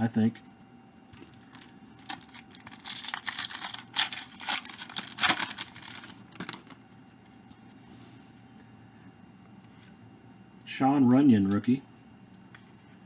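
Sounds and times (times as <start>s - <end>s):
wrapper tearing and crinkling: 1.2s - 6.8s.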